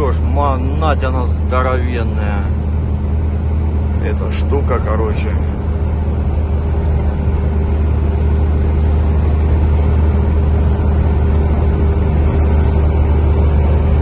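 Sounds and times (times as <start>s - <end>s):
road and tyre noise: 0.0s - 14.0s
truck engine drone: 0.0s - 14.0s.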